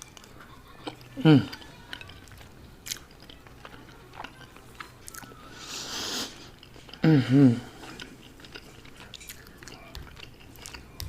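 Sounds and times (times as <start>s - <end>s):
wet chewing: 0.0s - 11.0s
person humming: 1.2s - 1.6s, 7.0s - 7.8s.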